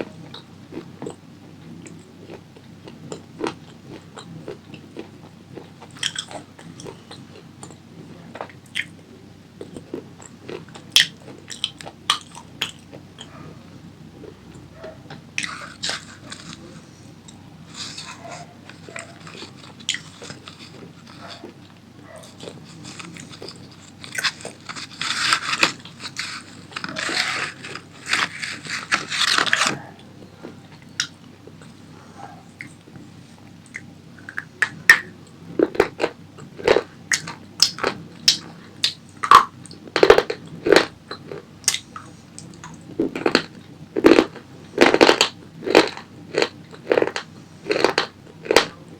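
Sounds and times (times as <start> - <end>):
crunchy food being chewed: 0.0 - 48.9
wet mouth clicks: 33.7 - 35.1.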